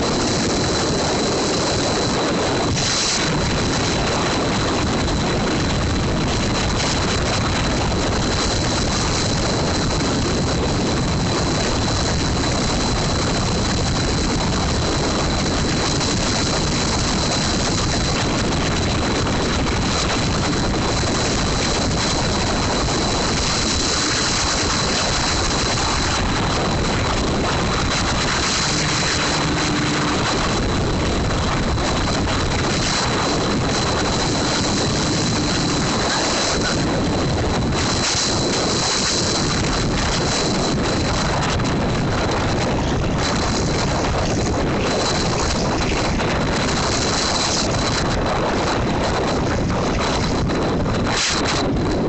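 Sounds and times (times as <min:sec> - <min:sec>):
thin high whine: 0:00.0 - 0:52.0
wind rushing over microphone: 0:00.0 - 0:52.0
motorcycle engine: 0:26.9 - 0:32.4.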